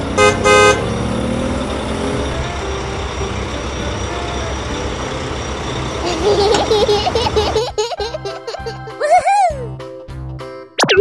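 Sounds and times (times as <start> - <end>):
cartoon truck engine running: 0.0 - 9.1
cartoon horn toots: 0.2 - 0.9.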